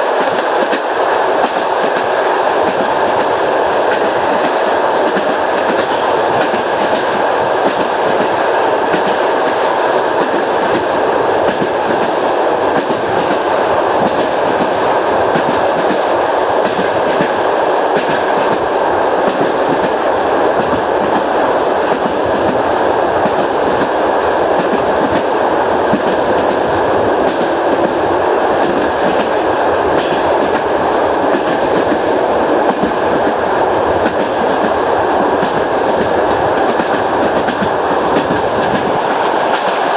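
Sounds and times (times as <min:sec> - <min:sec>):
train carriage rumble: 0:00.0 - 0:39.9
wheels clacking over rail joints: 0:00.0 - 0:39.9.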